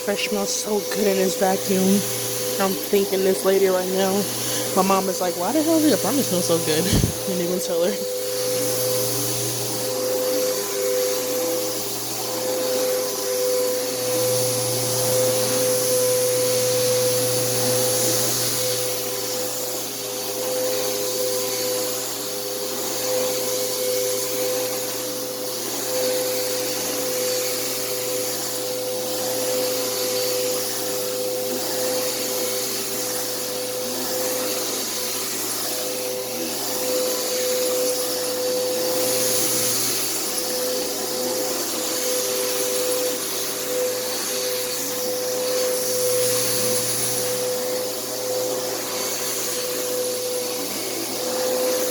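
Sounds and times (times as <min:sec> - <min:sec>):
vacuum cleaner running: 0:00.0 - 0:51.9.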